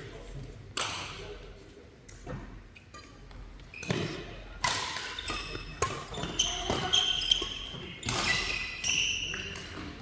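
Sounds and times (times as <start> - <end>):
shoes squeaking on court floor: 2.8 - 4.3, 5.1 - 10.0
racket hitting shuttlecock: 3.8 - 10.0.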